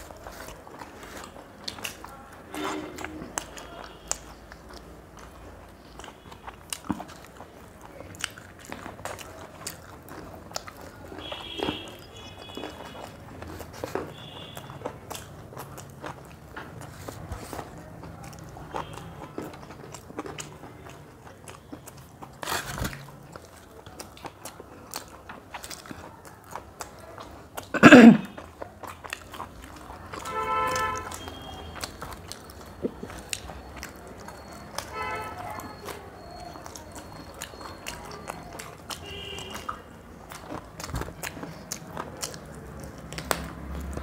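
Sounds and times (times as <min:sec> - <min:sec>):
people biting and chewing: 0:00.0 - 0:44.0
wet mouth clicks and smacks: 0:36.6 - 0:44.0.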